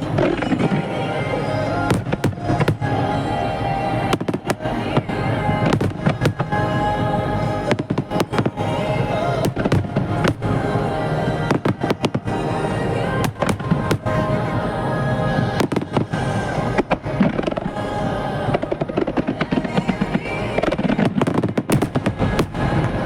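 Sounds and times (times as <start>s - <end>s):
music playing: 0.0s - 23.0s.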